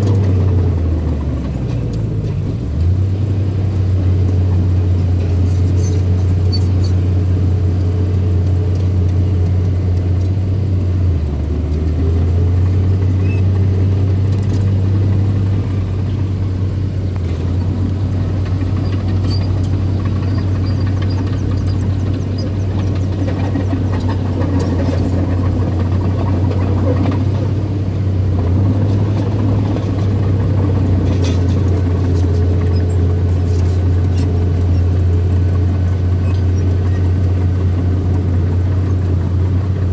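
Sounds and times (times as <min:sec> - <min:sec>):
bulldozer engine running: 0:00.0 - 0:39.9.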